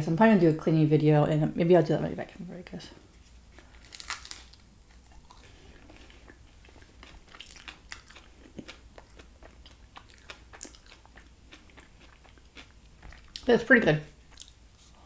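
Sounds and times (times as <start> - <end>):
chewing with small crunches: 3.5 - 13.5, 14.1 - 14.9.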